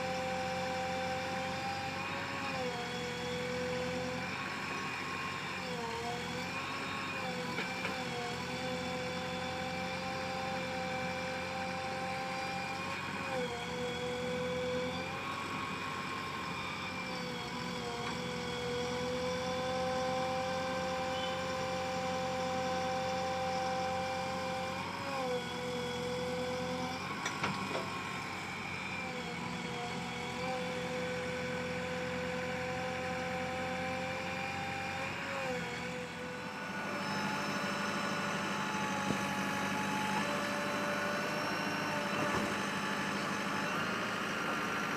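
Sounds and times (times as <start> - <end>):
diesel engine running: 35.8 - 44.9.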